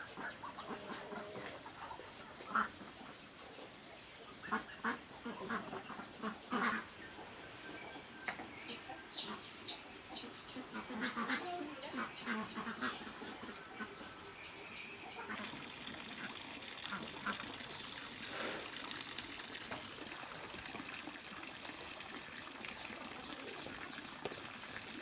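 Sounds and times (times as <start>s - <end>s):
chickens clucking: 0.0s - 25.0s
trickle of running water: 15.2s - 25.0s.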